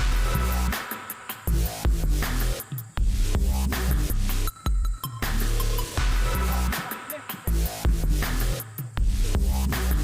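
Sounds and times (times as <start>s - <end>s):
electronic dance music: 6.0s - 8.6s.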